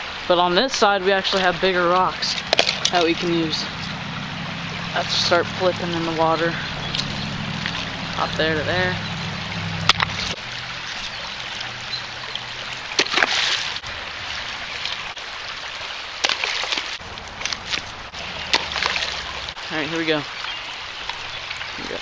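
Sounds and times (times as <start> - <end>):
creek water running: 0.0 - 22.0
rocks splashing into water: 1.2 - 9.0, 11.4 - 15.2, 16.1 - 19.7.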